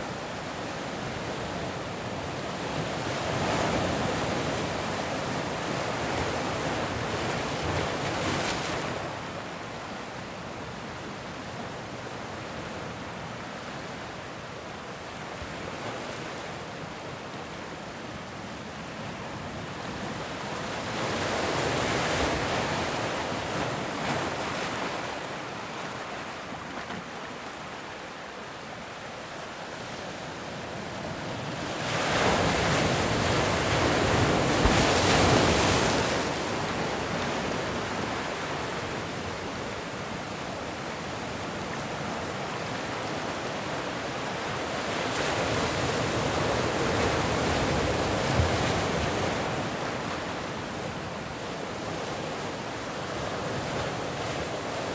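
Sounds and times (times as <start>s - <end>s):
ocean waves breaking on beach: 15.0s - 54.9s.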